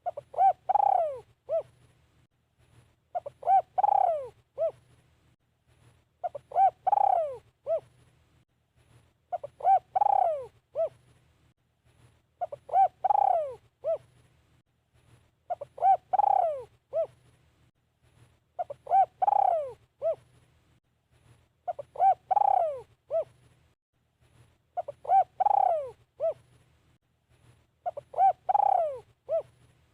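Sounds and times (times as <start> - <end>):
dove cooing: 0.0 - 1.8, 3.1 - 4.8, 6.2 - 8.0, 9.3 - 11.0, 12.4 - 14.1, 15.5 - 17.2, 18.6 - 20.3, 21.7 - 23.4, 24.8 - 26.5, 27.8 - 29.6.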